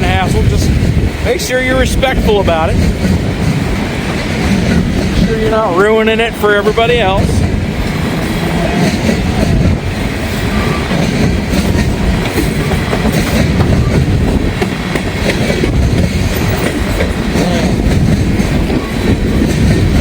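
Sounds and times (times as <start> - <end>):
freight train rumbling past: 0.0 - 20.0
wheels clacking over rail joints: 0.0 - 20.0.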